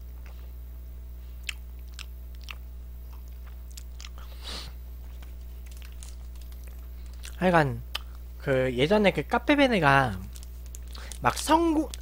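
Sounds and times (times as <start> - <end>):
steady electrical hum: 0.0 - 12.0
person chewing food: 1.3 - 8.3, 10.2 - 12.0.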